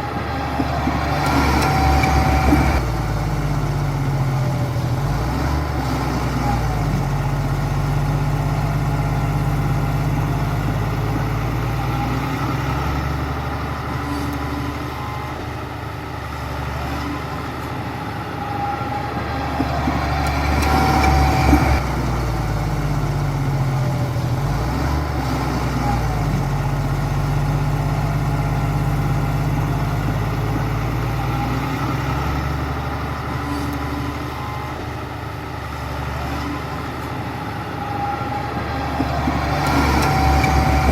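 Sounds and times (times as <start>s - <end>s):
heavy diesel machine engine: 0.0s - 40.9s.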